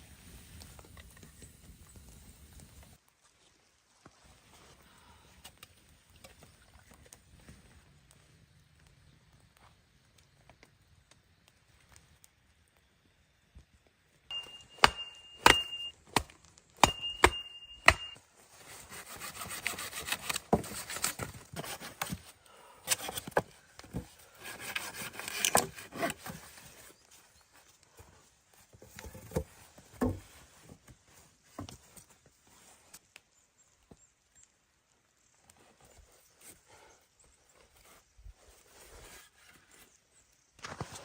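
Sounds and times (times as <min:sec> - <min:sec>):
thin high ringing tone: 0:14.3 - 0:16.0, 0:16.8 - 0:18.2
rough sawing strokes on wood: 0:18.6 - 0:21.0, 0:24.3 - 0:26.2.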